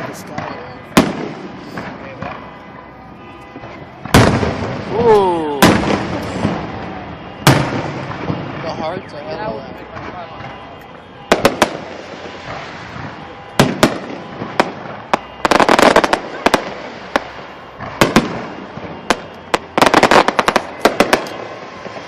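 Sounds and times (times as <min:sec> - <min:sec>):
dense firework crackling: 0:00.0 - 0:22.0
firework shells bursting: 0:11.3 - 0:21.5.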